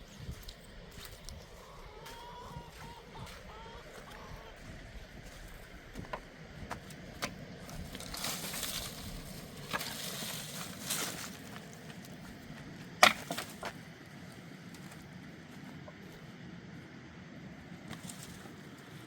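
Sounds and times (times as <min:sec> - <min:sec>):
crunching and rustling: 0:05.3 - 0:16.2, 0:17.8 - 0:19.0.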